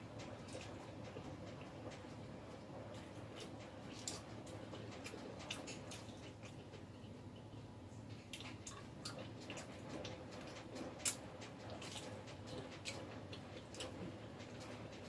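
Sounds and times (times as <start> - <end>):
person chewing with lip smacks: 8.2 - 14.0.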